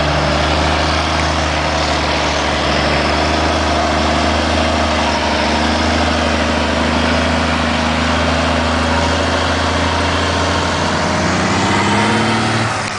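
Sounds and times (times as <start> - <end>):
diesel truck engine idling low: 0.0 - 12.9.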